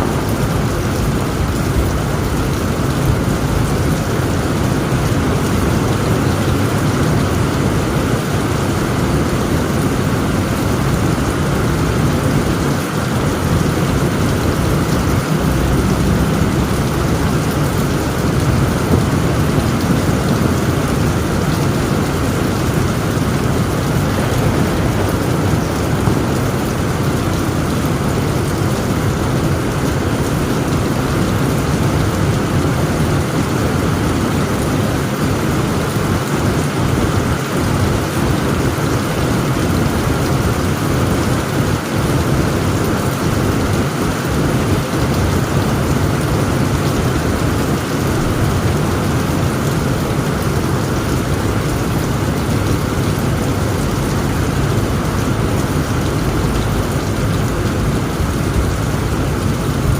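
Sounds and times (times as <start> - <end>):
low rumble of thunder: 0.0 - 34.4
heavy rain on a tent roof: 0.0 - 59.9.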